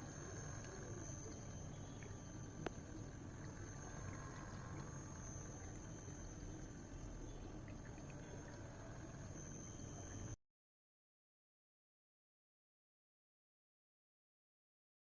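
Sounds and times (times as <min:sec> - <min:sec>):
fountain water trickling: 0:00.0 - 0:10.4.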